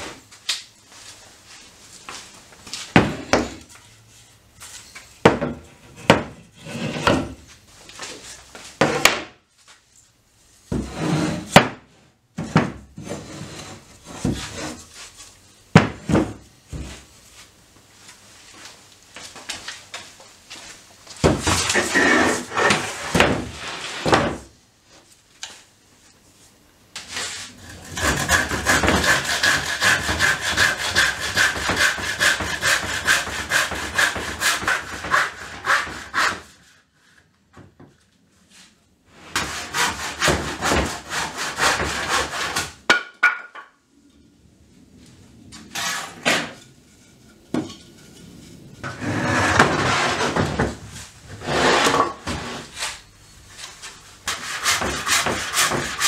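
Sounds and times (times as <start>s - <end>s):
wooden knocks and scraping: 4.7s - 7.4s, 45.5s - 52.9s
handsaw cutting wood: 27.6s - 36.5s, 39.3s - 42.7s, 54.3s - 56.0s.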